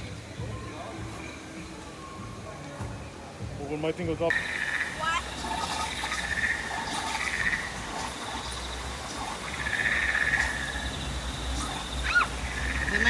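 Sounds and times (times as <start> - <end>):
frogs calling: 4.3 - 13.0
high insect buzz: 4.3 - 13.0.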